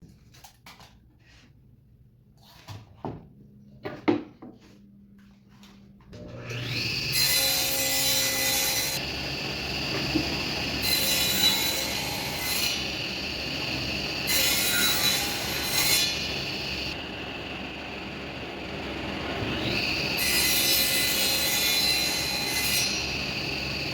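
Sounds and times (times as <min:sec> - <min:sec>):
power tool whining: 0:06.2 - 0:23.9.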